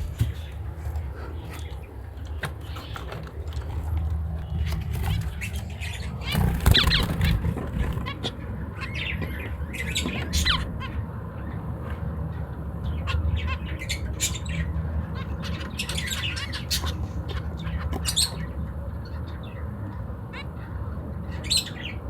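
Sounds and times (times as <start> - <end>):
finches chirping: 0.0 - 22.0
steady low hum: 0.0 - 22.0
wing flutters: 2.6 - 8.6.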